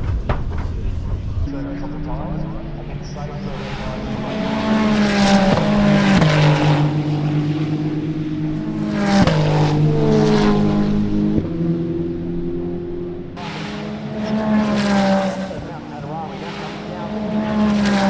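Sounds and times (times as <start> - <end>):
race car engines at high revs: 0.0 - 18.0.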